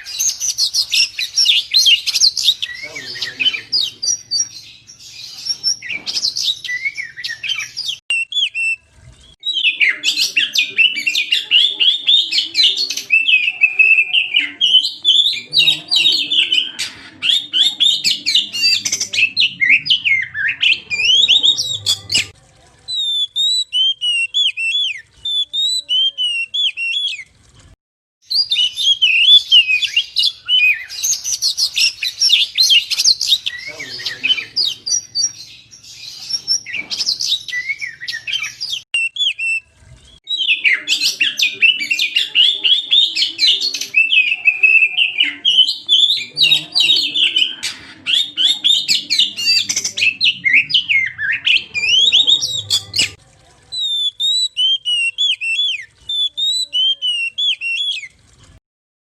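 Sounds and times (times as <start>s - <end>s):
bird singing whistles and chirps: 0.0s - 22.3s, 22.9s - 27.3s, 28.3s - 53.2s, 53.8s - 58.1s.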